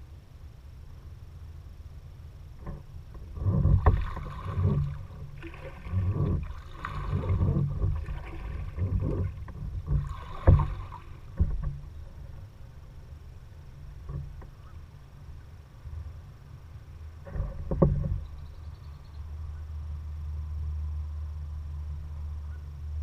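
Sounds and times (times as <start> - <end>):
paddle strokes splashing: 3.1 - 15.0.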